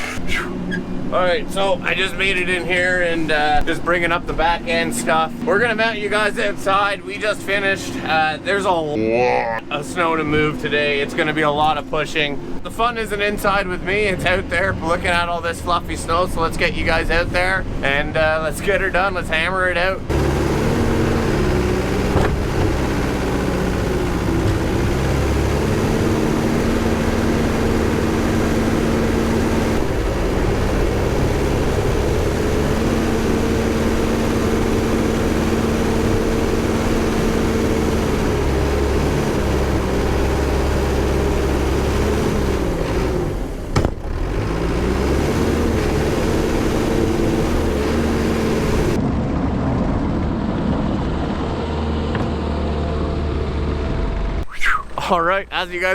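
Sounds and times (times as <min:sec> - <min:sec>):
diesel engine under load: 0:00.0 - 0:55.9
brief knock: 0:43.7 - 0:44.0.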